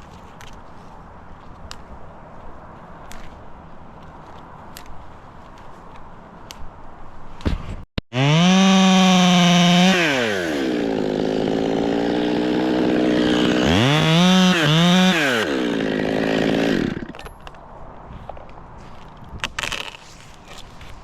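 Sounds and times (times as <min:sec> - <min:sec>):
chainsaw revving: 0:08.2 - 0:17.2.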